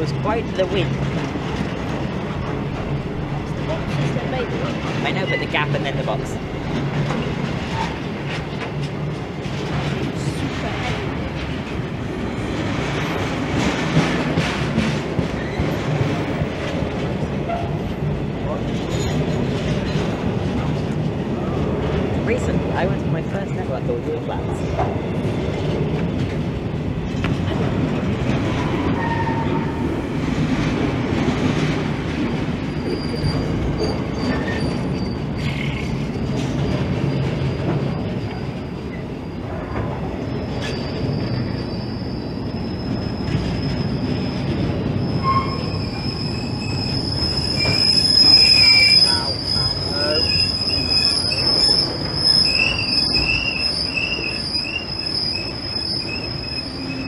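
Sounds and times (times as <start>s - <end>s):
train low rumble: 0.0s - 57.0s
steel wheels squealing on rails: 12.7s - 16.2s, 28.3s - 30.7s, 31.5s - 57.0s.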